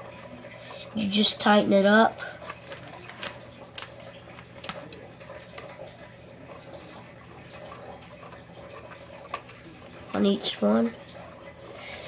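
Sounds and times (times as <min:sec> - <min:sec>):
small clicks and taps of wires: 0:02.6 - 0:05.0.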